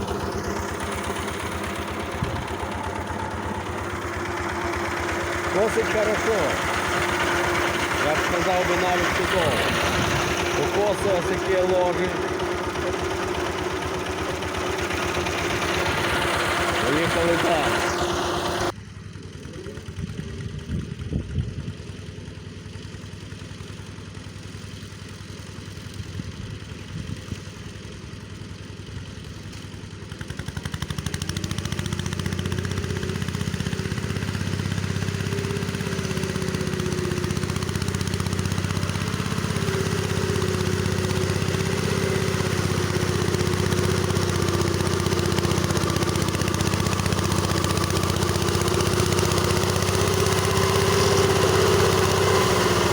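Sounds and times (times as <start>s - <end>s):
rotary mower whine: 0.0s - 52.9s
tractor engine drone: 0.0s - 52.9s.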